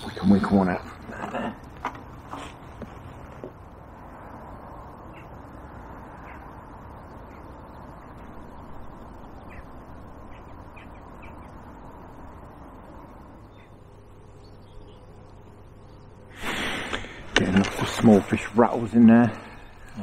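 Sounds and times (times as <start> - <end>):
outdoor background hiss: 0.0 - 20.0
short faint bird calls: 4.9 - 17.3.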